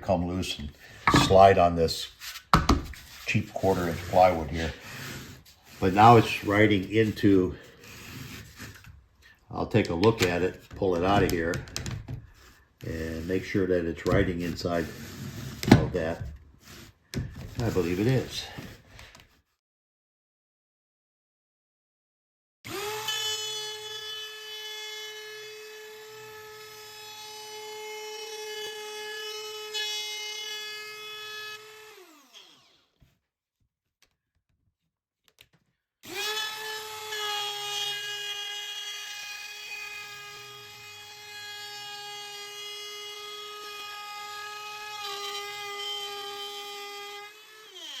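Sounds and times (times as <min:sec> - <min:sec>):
router whining while cutting wood: 0:22.7 - 0:33.0, 0:36.0 - 0:48.0.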